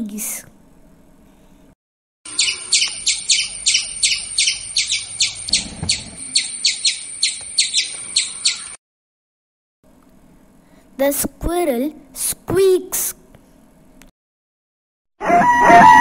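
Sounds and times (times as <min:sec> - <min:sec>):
squirrel squeaking: 0:02.3 - 0:08.8.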